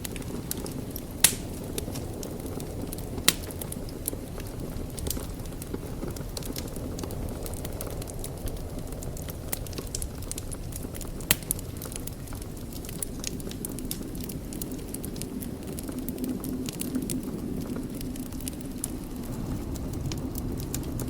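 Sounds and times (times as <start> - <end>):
wood fire crackling: 0.0 - 21.0
sharp pop from fire: 1.2 - 1.8, 3.2 - 3.7, 11.3 - 11.6.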